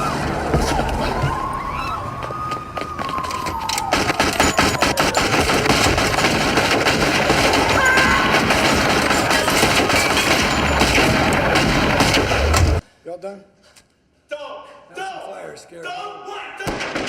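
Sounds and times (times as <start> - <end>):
police siren wailing: 0.0 - 5.7
rapid gunfire: 3.9 - 12.8, 16.7 - 17.0.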